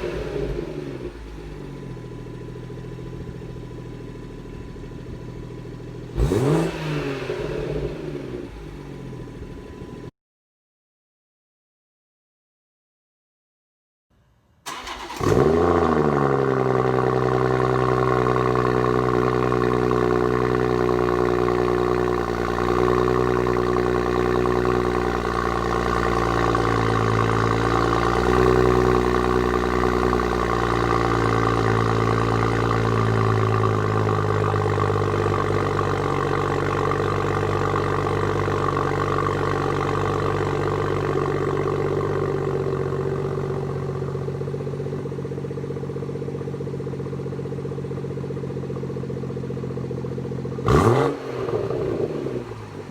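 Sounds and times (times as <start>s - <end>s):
car engine idling: 0.0s - 10.1s, 14.7s - 52.9s.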